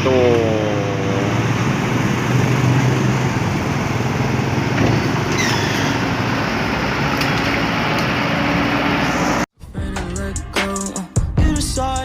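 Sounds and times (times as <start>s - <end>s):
roadside traffic noise: 0.0s - 9.5s.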